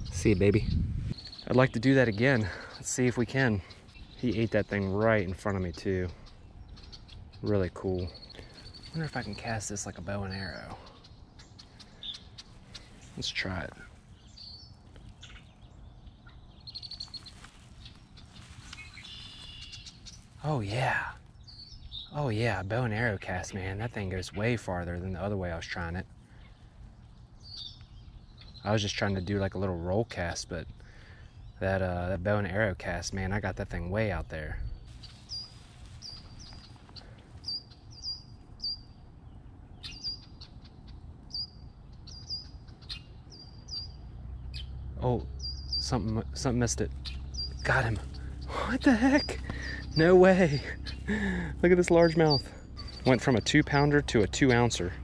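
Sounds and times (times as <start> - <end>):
bird calling in high trills: 0.0 - 29.5, 34.8 - 39.0, 39.7 - 55.0
faint outdoor background noise: 0.0 - 55.0.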